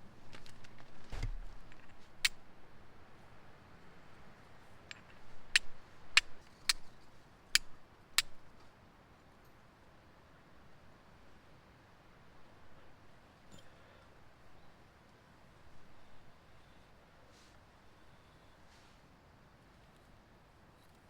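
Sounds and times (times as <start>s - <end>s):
quiet background hiss: 0.0s - 21.0s.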